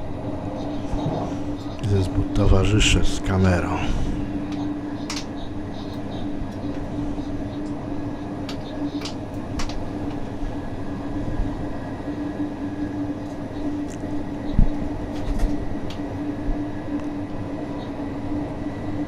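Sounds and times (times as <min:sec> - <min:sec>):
constant humming tone: 0:00.0 - 0:19.0.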